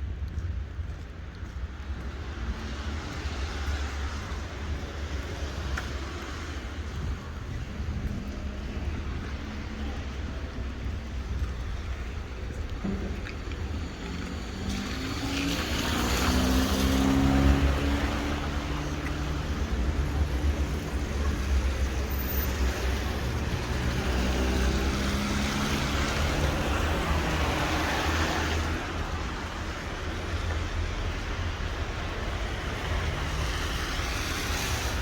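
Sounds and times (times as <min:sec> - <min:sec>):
cars passing on wet road: 0:00.0 - 0:35.0
low traffic rumble: 0:00.0 - 0:35.0.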